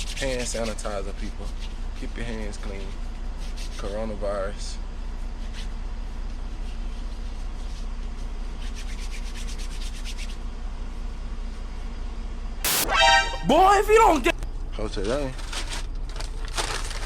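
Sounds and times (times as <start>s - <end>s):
hands rubbing together: 8.6s - 10.4s.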